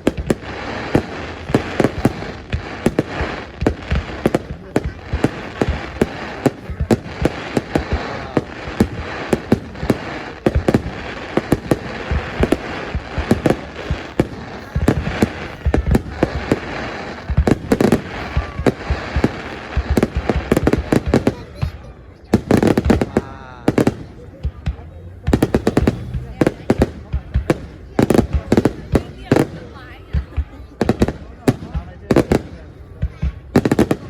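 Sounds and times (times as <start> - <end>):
fireworks bangs: 0.0 - 34.0
fireworks crackle: 0.0 - 34.0.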